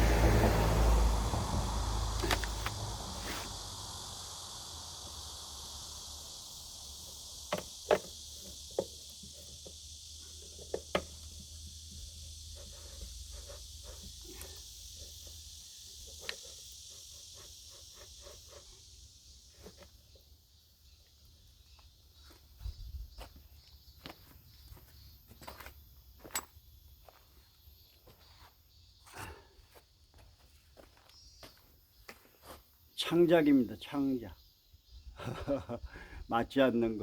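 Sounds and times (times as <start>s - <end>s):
insects chirring: 0.0s - 37.0s.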